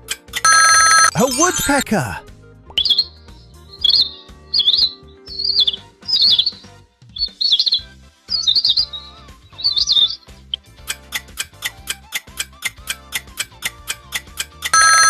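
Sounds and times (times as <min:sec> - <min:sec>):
background music: 0:00.0 - 0:15.0
cheetah chirping: 0:03.8 - 0:06.6, 0:07.2 - 0:07.8, 0:08.4 - 0:09.0, 0:09.6 - 0:10.2.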